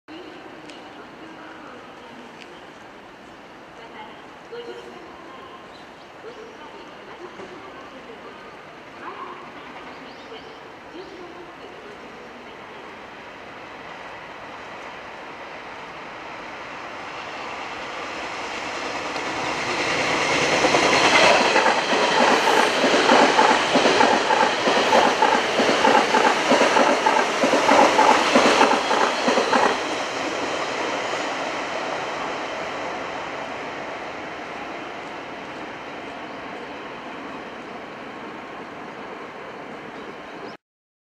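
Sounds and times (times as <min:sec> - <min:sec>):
electric train passing: 0:10.6 - 0:40.5.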